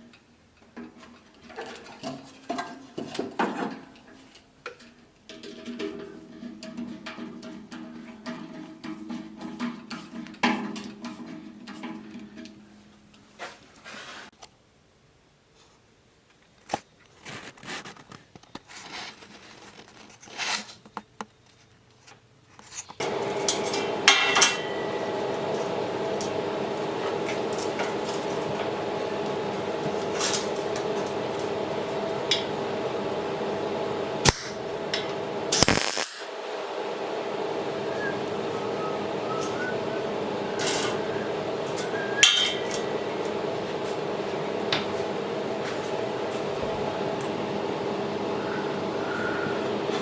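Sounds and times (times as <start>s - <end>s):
machine humming: 23.0s - 50.0s
sharp metal clanks: 23.5s - 25.0s, 42.2s - 42.8s.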